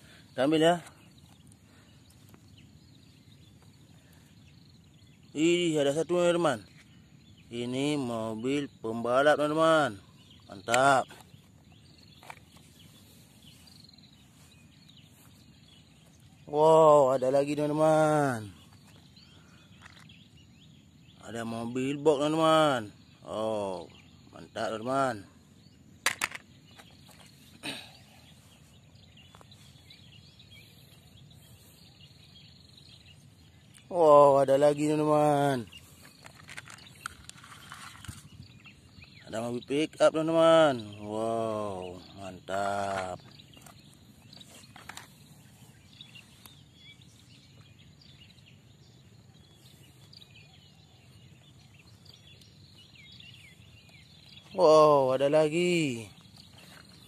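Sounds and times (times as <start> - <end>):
birds chirping quietly: 0.0 - 57.0
rustling scrape: 36.3 - 38.2.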